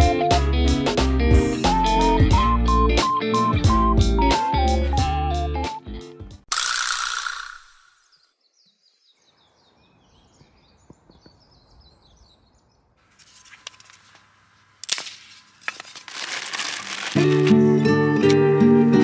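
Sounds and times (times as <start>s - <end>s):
faint rustling: 13.0s - 17.6s
sharp clicks: 13.2s - 17.6s.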